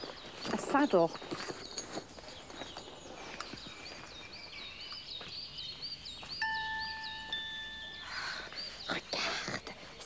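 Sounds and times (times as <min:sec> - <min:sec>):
small bird chirping: 0:00.0 - 0:10.0
clear steady tone: 0:06.4 - 0:08.8.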